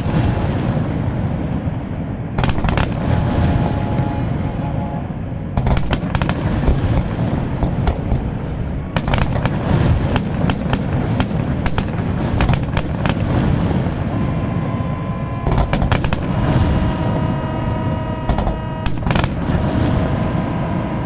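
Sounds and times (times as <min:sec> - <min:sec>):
fireworks cracks and bangs: 0:00.0 - 0:04.4, 0:05.4 - 0:21.0
steady multi-pitched tone: 0:00.0 - 0:05.6, 0:13.8 - 0:21.0
low rumble: 0:00.0 - 0:21.0.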